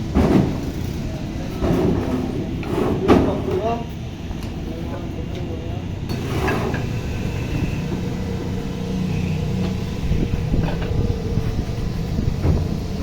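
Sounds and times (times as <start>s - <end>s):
vehicle engine humming: 0.0s - 13.0s
short knocks and scrapes: 1.6s - 3.5s, 6.1s - 6.9s.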